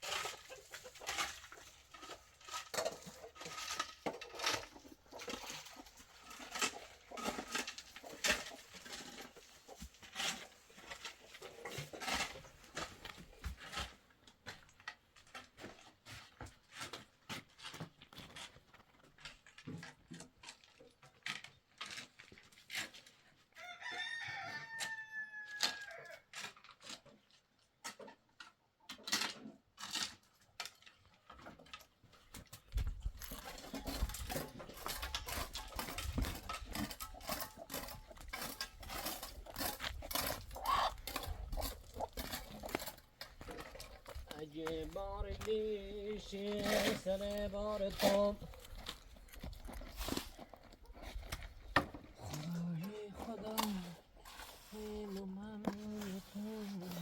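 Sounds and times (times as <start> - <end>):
rooster crowing: 23.6 - 26.2.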